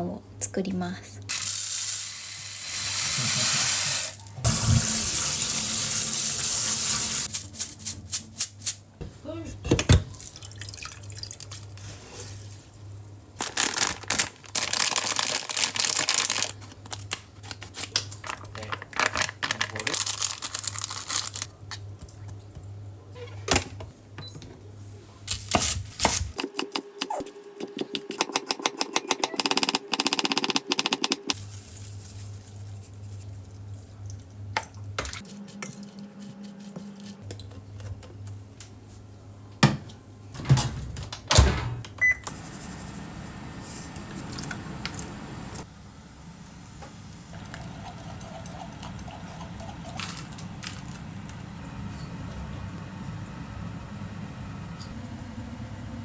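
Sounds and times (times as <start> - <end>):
tap water running: 1.3 - 7.3, 43.9 - 45.6.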